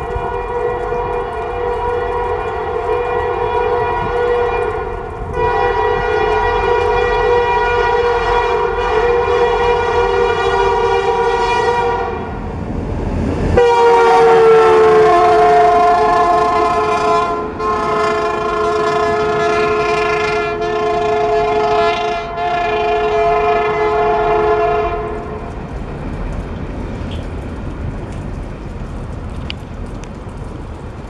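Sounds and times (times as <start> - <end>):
freight cars rumbling on rails: 0.0 - 31.0
locomotive air horn blasts: 0.1 - 12.4, 13.6 - 25.4.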